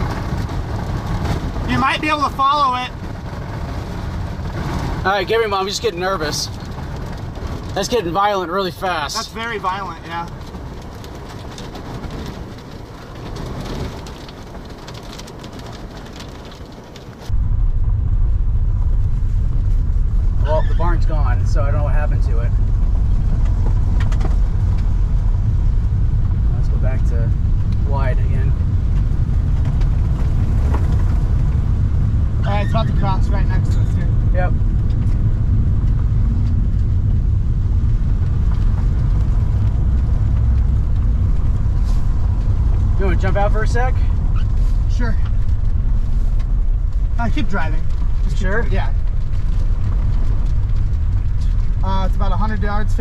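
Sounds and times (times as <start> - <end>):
rain and wind: 0.0 - 53.0
loud low rumble: 17.3 - 53.0.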